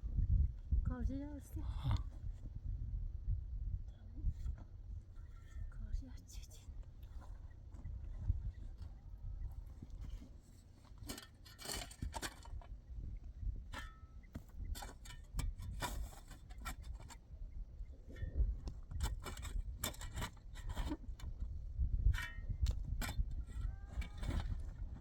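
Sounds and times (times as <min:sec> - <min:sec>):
short scrapes and clinks: 0:10.9 - 0:12.7, 0:14.8 - 0:17.2, 0:18.9 - 0:21.3.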